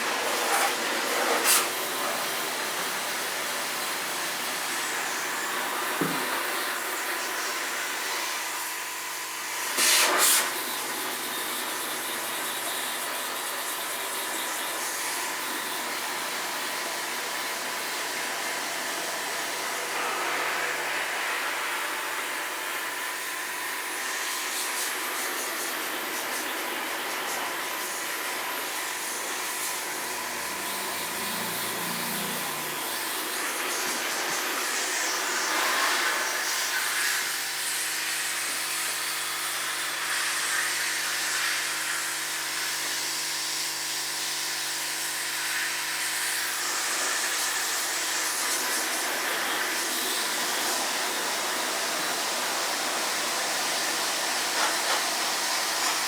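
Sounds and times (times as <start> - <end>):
water jet spraying hiss: 0.0 - 8.3, 9.6 - 22.3, 45.4 - 56.0.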